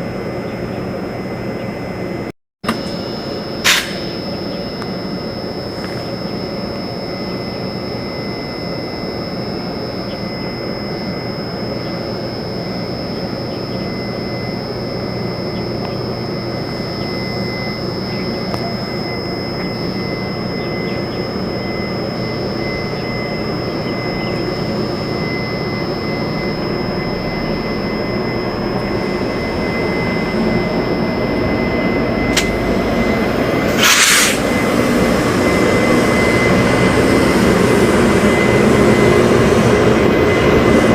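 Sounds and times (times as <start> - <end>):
train rumbling: 26.8 - 40.9
short sharp hiss: 33.8 - 34.4.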